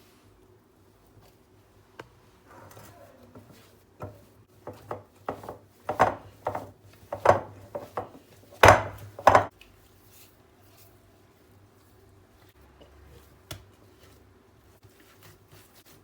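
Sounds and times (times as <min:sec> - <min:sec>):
knocks and scrapes on wood: 0:02.5 - 0:09.5.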